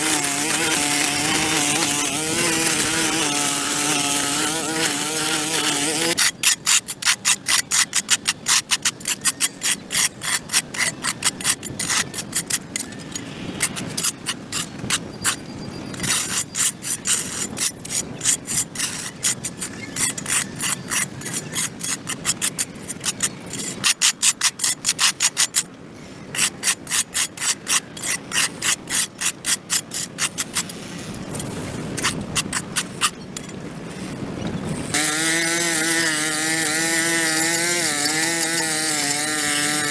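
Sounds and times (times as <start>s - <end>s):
hand tool scraping concrete: 0.0s - 25.7s, 26.4s - 39.9s.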